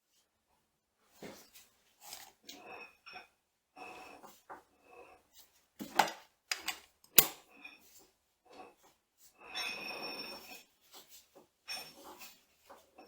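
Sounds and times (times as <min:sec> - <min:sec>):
metal parts clinking: 0:06.0 - 0:07.4.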